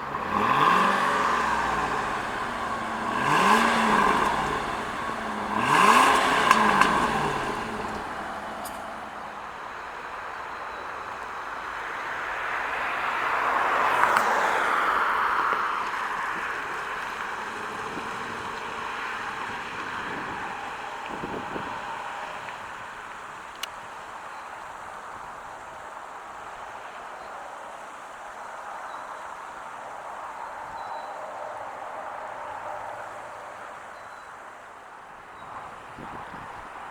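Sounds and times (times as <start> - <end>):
car passing by: 0.0 - 23.6.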